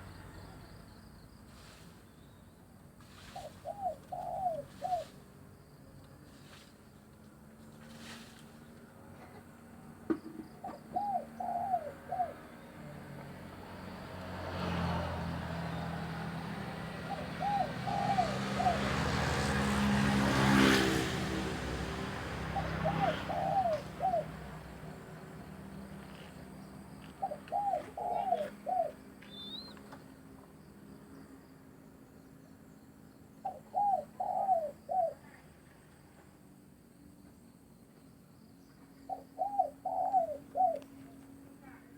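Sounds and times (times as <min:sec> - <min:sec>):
passing motor vehicle: 0:00.0 - 0:41.9
dove cooing: 0:03.4 - 0:05.2, 0:10.6 - 0:12.5, 0:16.8 - 0:19.6, 0:22.4 - 0:24.9, 0:27.0 - 0:29.7, 0:33.4 - 0:35.4, 0:39.1 - 0:41.0.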